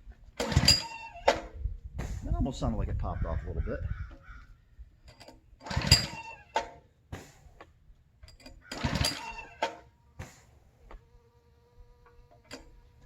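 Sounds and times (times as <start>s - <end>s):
recoil starter cord pulls: 0.3s - 1.6s, 5.1s - 6.9s, 8.2s - 10.6s, 12.0s - 13.0s
small engine cranking: 0.4s - 1.6s, 5.1s - 6.8s, 8.3s - 10.6s.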